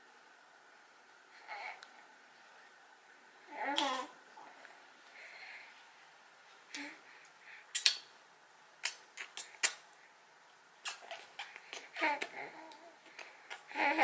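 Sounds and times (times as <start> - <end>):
baby babbling: 11.0 - 14.0.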